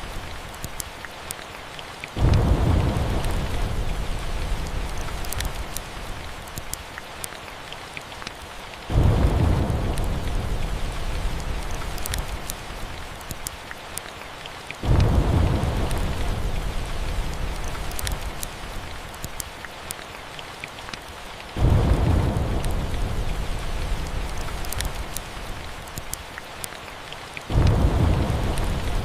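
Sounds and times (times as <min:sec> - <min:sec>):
steady rain: 0:00.0 - 0:29.0
thunder rolling: 0:02.2 - 0:05.2, 0:08.9 - 0:11.8, 0:14.8 - 0:17.7, 0:21.6 - 0:24.7, 0:27.5 - 0:29.0
faint sharp crackles: 0:04.6 - 0:07.4, 0:11.4 - 0:14.1, 0:16.9 - 0:21.2, 0:24.0 - 0:27.8.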